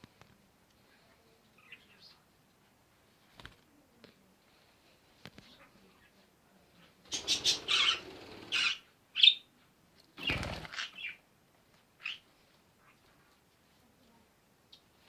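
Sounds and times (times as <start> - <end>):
parrot flapping wings: 7.1 - 8.7, 10.2 - 10.9
parrot chirping: 7.1 - 9.4.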